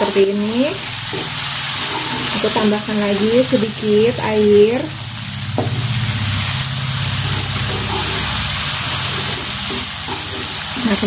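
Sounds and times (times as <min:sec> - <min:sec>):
spice paste and onions sizzling: 0:00.0 - 0:11.0
wooden spatula stirring: 0:07.2 - 0:10.8.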